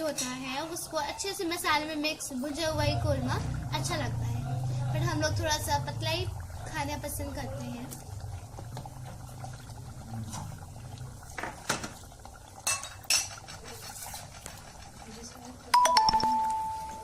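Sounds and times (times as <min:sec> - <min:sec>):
metal spoon scraping a pot: 0:12.6 - 0:15.5.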